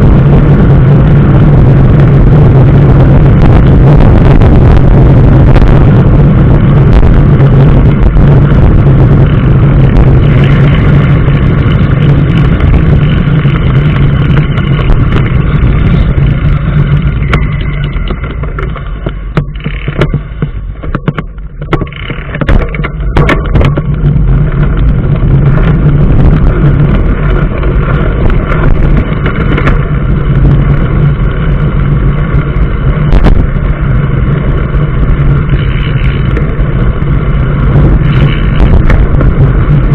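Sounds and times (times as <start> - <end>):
engine and road noise drone: 0.0 - 39.9.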